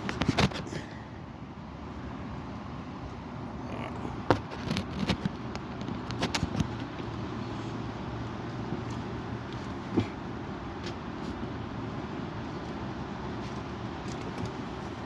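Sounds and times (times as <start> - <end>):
sharp clicks and knocks: 4.3 - 7.2.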